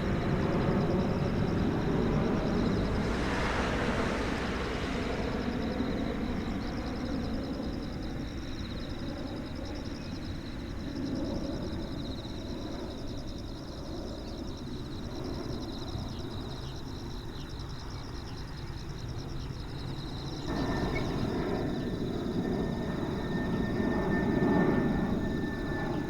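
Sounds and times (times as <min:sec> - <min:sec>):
insects trilling: 0:00.0 - 0:26.0
low distant rumble: 0:20.5 - 0:26.0.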